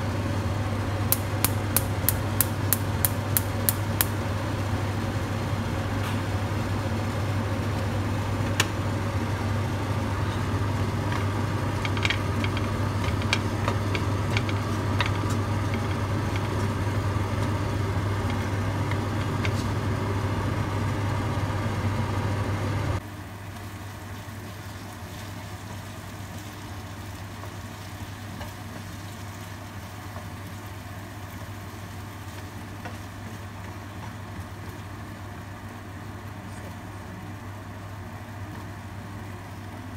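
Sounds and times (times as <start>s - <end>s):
food frying in a wok: 0.0s - 39.9s
wooden spatula clicking on pan: 1.1s - 4.2s.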